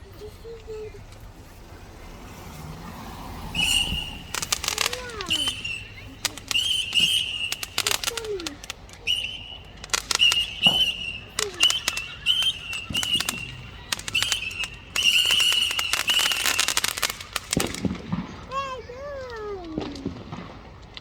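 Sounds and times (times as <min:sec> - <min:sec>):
high steady firework whistle: 0:00.0 - 0:18.5
firework bangs and crackles: 0:00.0 - 0:21.0.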